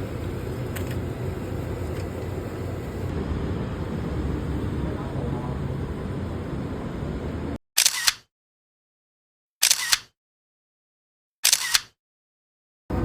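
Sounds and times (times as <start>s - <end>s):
camera shutter clicks: 7.8s - 8.3s, 9.6s - 10.2s, 11.4s - 12.0s.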